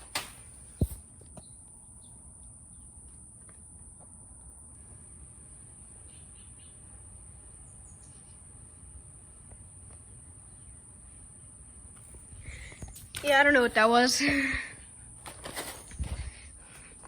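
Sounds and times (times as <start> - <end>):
faint bird chirps: 6.0 - 7.0, 7.6 - 8.6.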